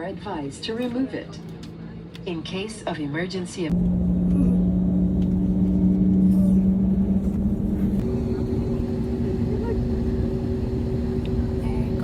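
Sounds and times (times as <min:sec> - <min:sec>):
airliner cabin rumble: 0:03.7 - 0:12.0.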